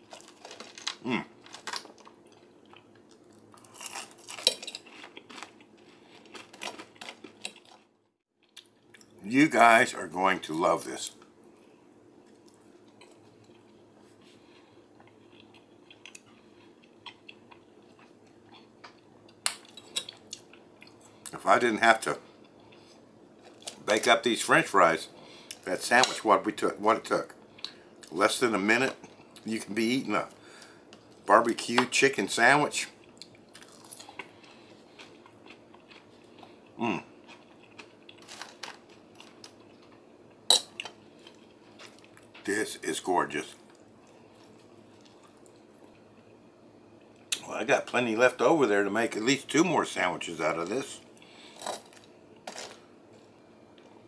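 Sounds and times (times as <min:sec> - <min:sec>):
person chewing: 0:00.0 - 0:09.2, 0:12.2 - 0:21.4, 0:33.0 - 0:42.4.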